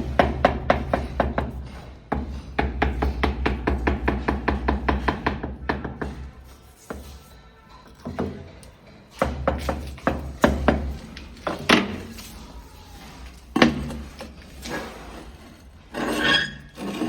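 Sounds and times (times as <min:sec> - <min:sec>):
tapping on wall tile: 0:02.2 - 0:06.2.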